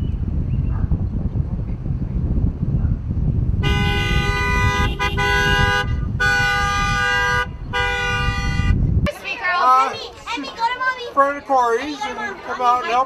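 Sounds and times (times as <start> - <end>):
engines rumbling: 0.0 - 13.0
low rumble of wind: 0.0 - 13.0
vehicle horn blasts: 3.6 - 8.9.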